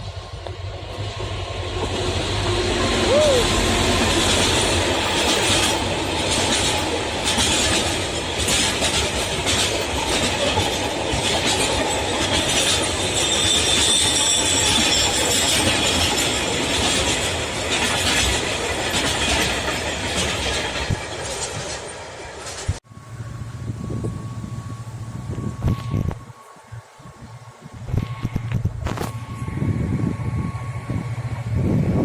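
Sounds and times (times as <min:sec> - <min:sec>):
wheels clacking over rail joints: 0:00.0 - 0:22.8
freight train wagons rumbling: 0:00.0 - 0:32.0
high wheel squeal: 0:02.2 - 0:06.0, 0:11.8 - 0:18.3.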